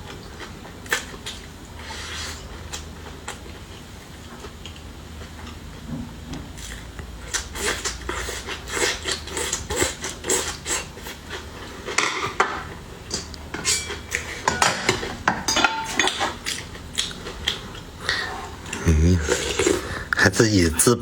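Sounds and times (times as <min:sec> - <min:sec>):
dishes and utensils clattering: 0:11.8 - 0:16.7.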